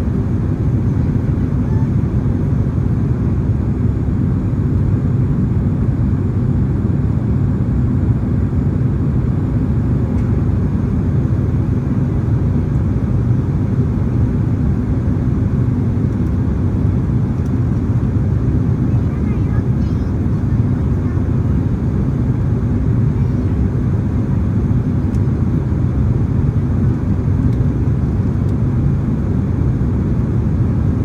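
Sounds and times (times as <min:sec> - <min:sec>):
airliner cabin engine rumble: 0:00.0 - 0:31.0.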